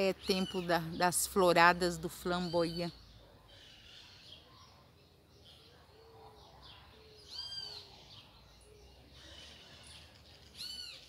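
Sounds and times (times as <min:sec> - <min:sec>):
clear arched bird calls: 0:07.1 - 0:08.3, 0:09.2 - 0:11.0.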